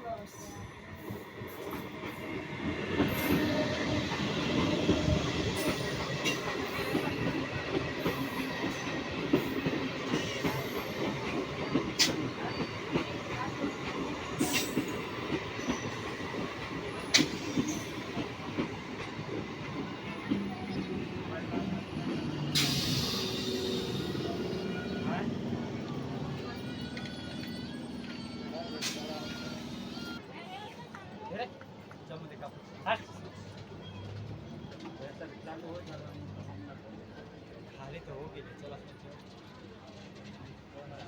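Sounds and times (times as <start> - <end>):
train wheels rumbling on rails: 0.0 - 30.2
wheels clanking on rail joints: 3.0 - 30.2.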